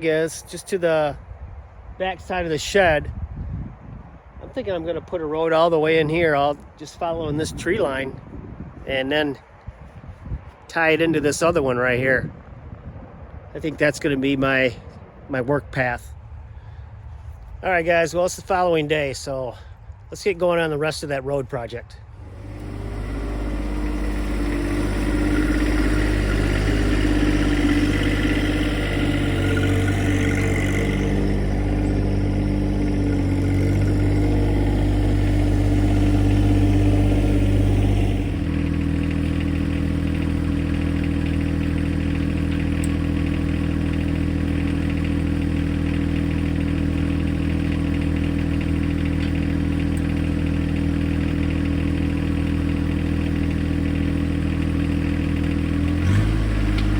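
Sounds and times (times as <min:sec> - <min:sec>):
tractor diesel engine running: 0:22.1 - 0:56.9.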